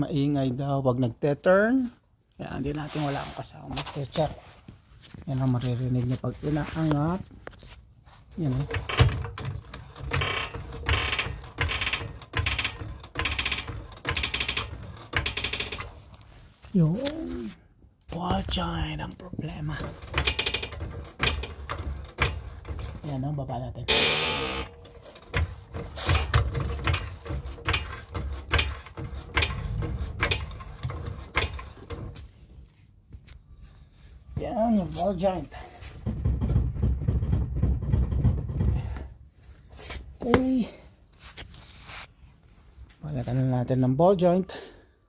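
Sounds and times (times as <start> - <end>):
suspension joint creaking: 8.3 - 17.5, 18.1 - 32.5, 34.6 - 40.7.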